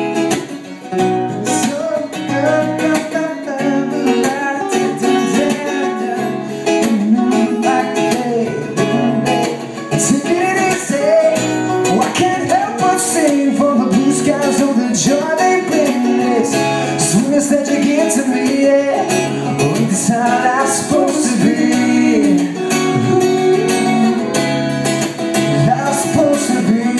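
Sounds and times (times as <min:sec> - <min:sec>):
acoustic guitar strumming: 0:00.0 - 0:26.9
person singing: 0:01.3 - 0:24.5, 0:25.5 - 0:26.9.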